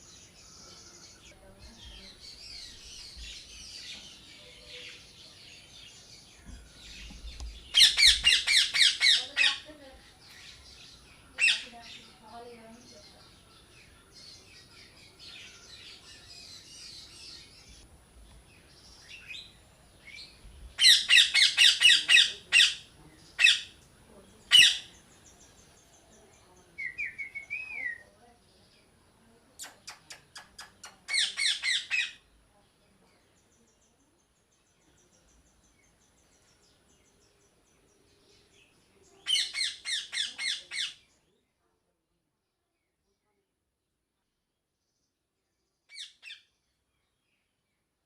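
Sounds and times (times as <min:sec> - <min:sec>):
parrots squawking: 0:07.7 - 0:09.7, 0:11.4 - 0:11.7, 0:20.8 - 0:23.7, 0:24.5 - 0:24.9, 0:31.1 - 0:32.2, 0:39.3 - 0:41.0.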